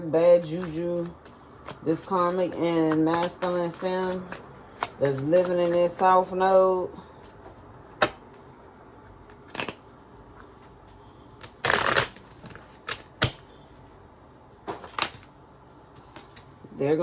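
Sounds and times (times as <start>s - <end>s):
cards shuffling: 0.4s - 6.0s, 11.4s - 13.4s, 16.0s - 16.6s.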